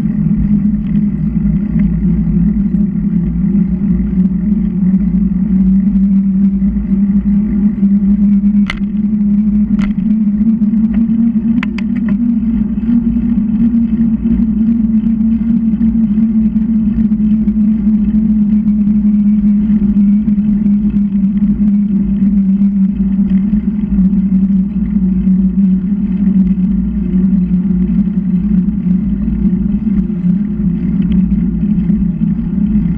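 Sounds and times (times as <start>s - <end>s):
bicycle ride rumble: 0.0s - 32.9s
sharp clicks: 8.7s - 9.0s, 9.8s - 10.0s.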